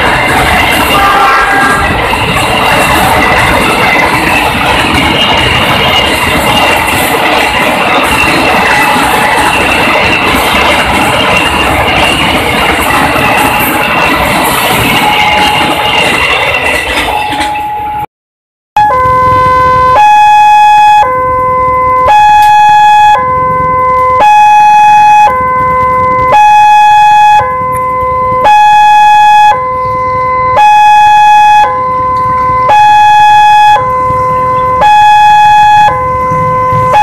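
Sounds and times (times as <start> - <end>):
two-tone emergency siren: 0.0 - 18.1, 18.8 - 37.0.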